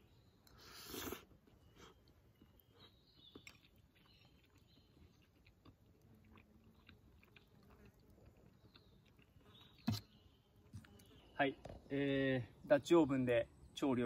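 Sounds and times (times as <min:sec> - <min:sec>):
person chewing food: 0:00.4 - 0:10.2.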